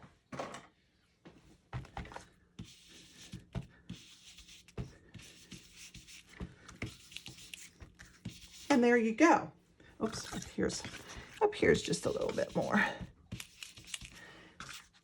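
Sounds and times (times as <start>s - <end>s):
brush hissing on cardstock: 2.8s - 8.7s, 10.3s - 14.2s.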